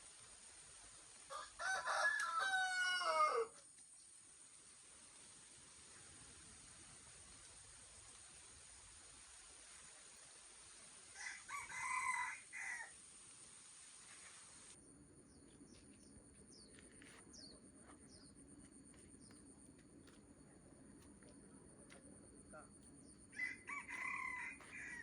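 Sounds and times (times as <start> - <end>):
steady hiss: 0.0 - 25.0
rooster crowing: 1.3 - 3.6, 11.1 - 13.0, 23.3 - 25.0
small birds chirping: 15.3 - 18.4.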